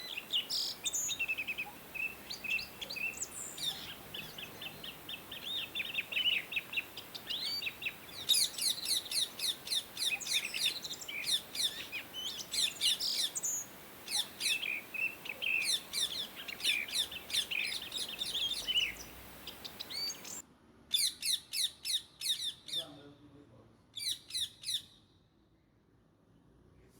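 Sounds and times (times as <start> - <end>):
parakeets chirping: 0.0 - 20.4.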